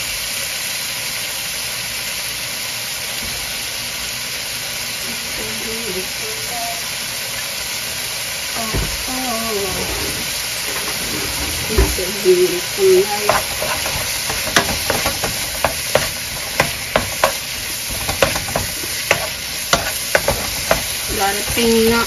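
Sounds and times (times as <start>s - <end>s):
food sizzling in a wok: 0.0s - 22.0s
wooden spoon scraping a pan: 9.3s - 22.0s.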